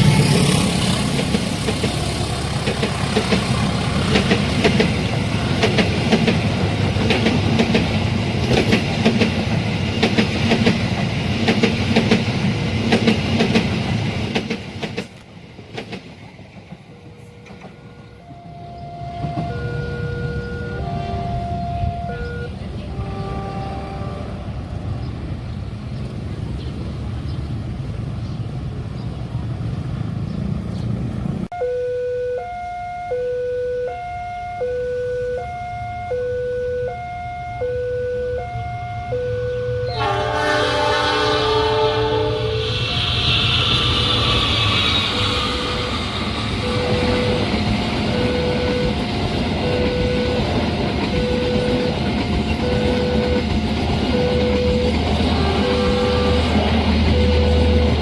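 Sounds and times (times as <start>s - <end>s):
train rumbling over rails: 0.0s - 31.5s, 39.9s - 58.0s
two-tone electronic warning signal: 17.4s - 24.3s, 31.5s - 40.6s, 45.0s - 58.0s.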